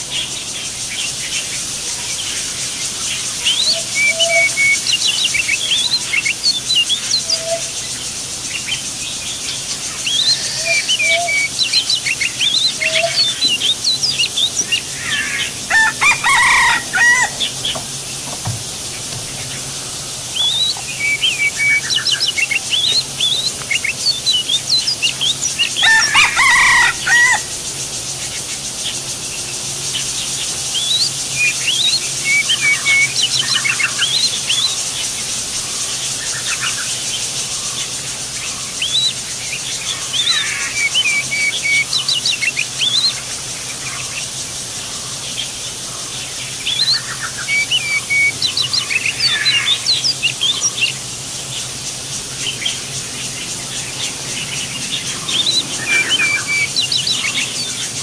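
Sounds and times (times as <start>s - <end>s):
birds chirping: 0.0s - 58.0s
steady high hiss: 0.0s - 58.0s
lower bird call: 2.2s - 27.6s, 46.4s - 58.0s.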